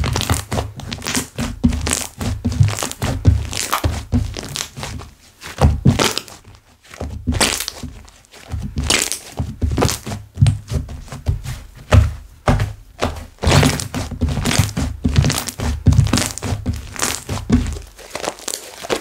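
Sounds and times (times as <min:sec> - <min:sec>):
hands squishing slime: 0:00.0 - 0:19.0.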